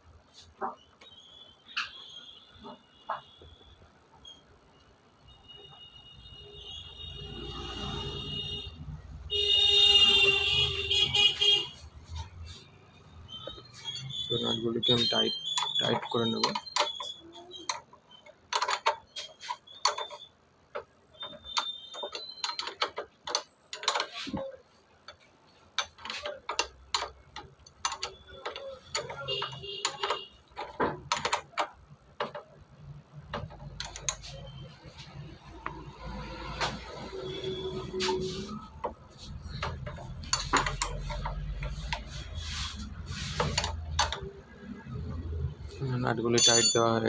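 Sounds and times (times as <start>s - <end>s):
metal tools clicking on bolts: 13.2s - 47.0s
wrench clicking on metal: 25.8s - 32.5s, 46.4s - 47.0s.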